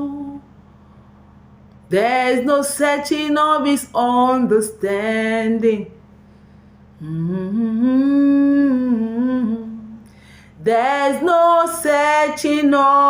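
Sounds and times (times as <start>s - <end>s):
woman singing unaccompanied: 0.0s - 0.5s, 1.9s - 6.0s, 7.0s - 10.0s, 10.6s - 13.0s
woman humming a sustained note: 7.0s - 10.0s.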